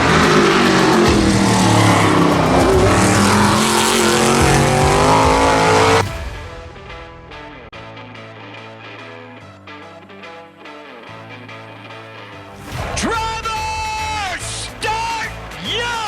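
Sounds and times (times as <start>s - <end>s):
engine revving hard: 0.0s - 6.1s
plucked guitar music: 0.0s - 12.6s.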